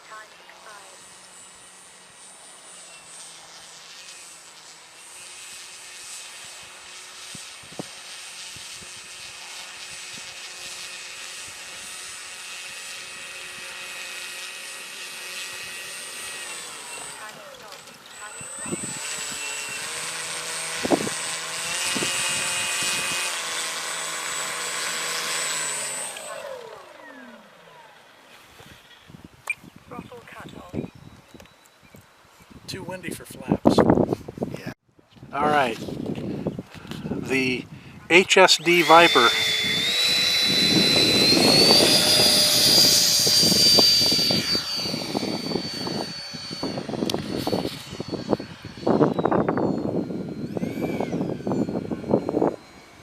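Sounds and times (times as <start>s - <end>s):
rc airplane motor drone: 0.0s - 32.6s, 33.6s - 53.0s
model jet electric fan whine: 0.0s - 53.0s
wind rumbling on microphone: 18.1s - 23.3s, 28.6s - 38.1s, 39.3s - 53.0s.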